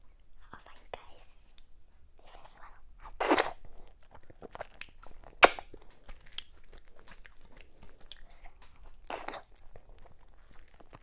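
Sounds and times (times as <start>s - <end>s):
close chewing mouth sounds: 2.6s - 11.0s
sharp lip smack: 5.4s - 5.7s.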